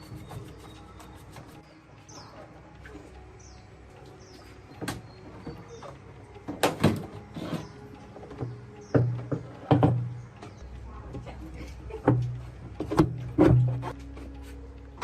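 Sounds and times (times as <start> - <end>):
bird chirps: 0.0 - 6.1.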